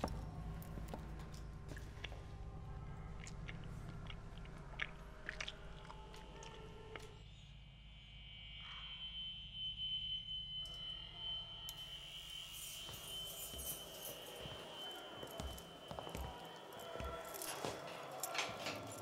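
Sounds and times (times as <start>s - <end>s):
man chewing food: 3.1s - 7.0s.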